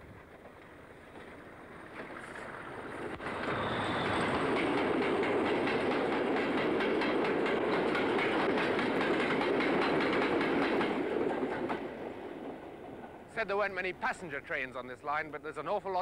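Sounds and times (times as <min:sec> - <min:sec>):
train wheels clattering over joints: 0:00.2 - 0:11.9.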